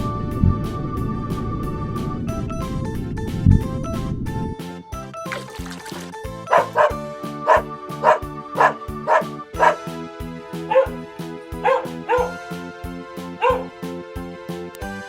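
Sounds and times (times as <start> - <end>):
background music with beat: 0.0 - 15.0
dog barking: 6.5 - 9.9, 10.7 - 11.0, 11.6 - 12.4, 13.4 - 13.7.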